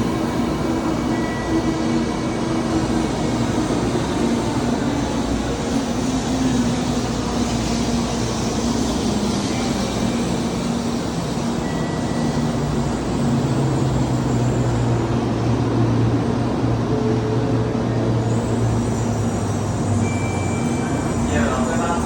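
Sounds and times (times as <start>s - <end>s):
train running noise: 0.0s - 22.0s.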